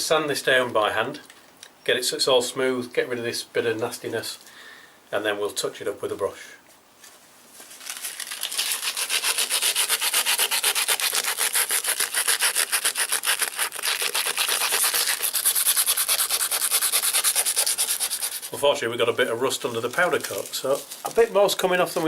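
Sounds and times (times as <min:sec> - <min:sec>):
hand sanding scraping strokes: 0:08.5 - 0:18.8.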